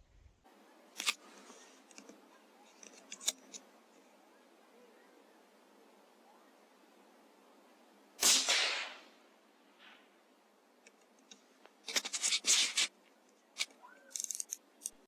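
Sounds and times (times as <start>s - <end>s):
rifle shot crack: 8.2s - 9.2s
rustles and clicks: 10.8s - 15.0s.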